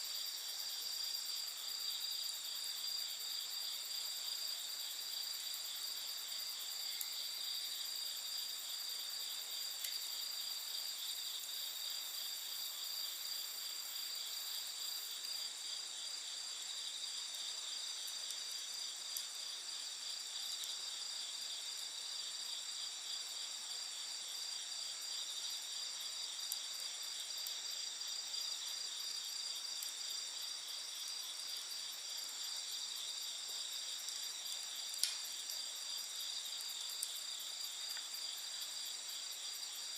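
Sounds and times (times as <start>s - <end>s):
insects chirping: 0.0s - 39.9s
campfire crackling pops: 6.9s - 7.7s, 9.6s - 10.2s, 17.3s - 19.5s, 33.5s - 37.2s, 37.8s - 38.2s.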